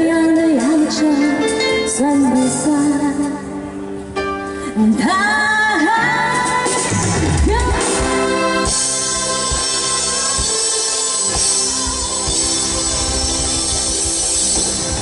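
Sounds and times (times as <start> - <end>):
live pop band playing: 0.0 - 15.0
person singing: 4.7 - 14.3.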